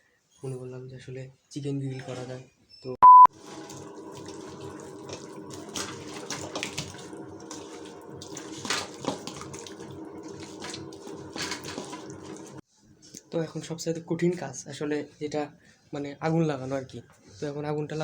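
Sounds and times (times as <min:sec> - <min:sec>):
loud beep: 0:03.0 - 0:03.3
tap water running into sink: 0:03.3 - 0:12.6.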